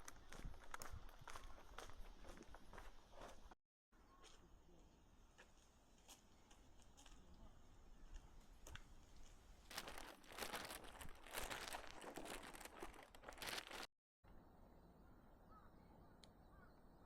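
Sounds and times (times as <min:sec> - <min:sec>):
footsteps crunching on leaves: 0:09.6 - 0:13.9.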